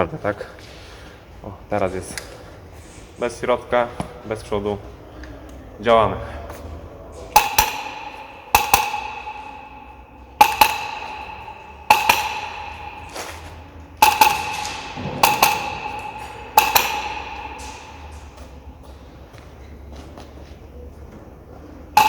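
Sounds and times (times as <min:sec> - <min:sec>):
airsoft gun shots cracking: 0:10.4 - 0:18.6.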